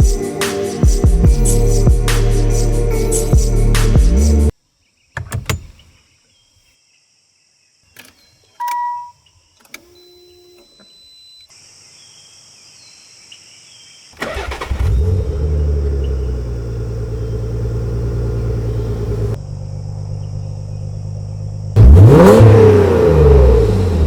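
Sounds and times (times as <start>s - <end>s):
car engine cranking and starting: 5.2s - 5.8s, 14.2s - 24.0s
short beep: 8.6s - 9.2s.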